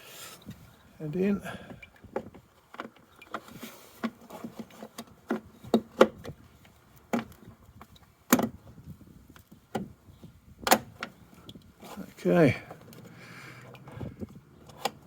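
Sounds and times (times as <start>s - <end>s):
hard plastic clicks and knocks: 10.6s - 11.2s.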